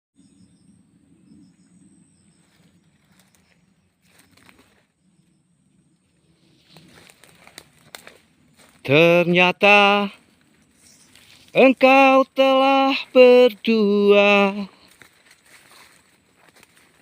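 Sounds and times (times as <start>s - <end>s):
high-pitched insect drone: 0.2s - 7.1s.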